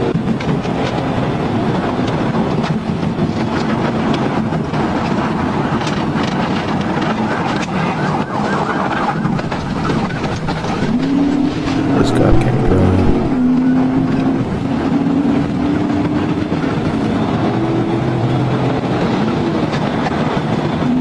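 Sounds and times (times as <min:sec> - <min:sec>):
car engine driving fast: 0:08.9 - 0:14.7.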